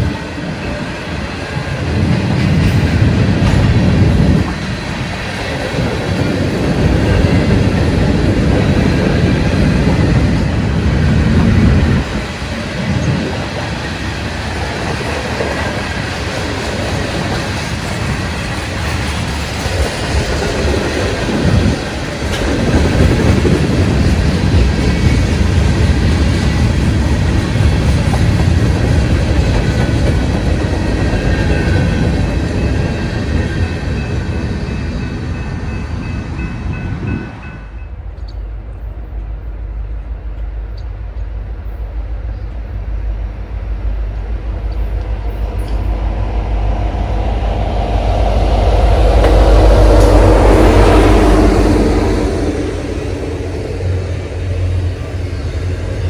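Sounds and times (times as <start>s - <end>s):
train rolling past: 0.0s - 56.0s.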